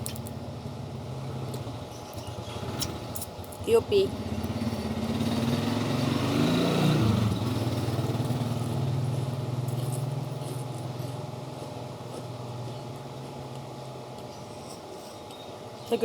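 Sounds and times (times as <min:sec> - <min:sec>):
vehicle engine passing by: 0:04.1 - 0:10.7.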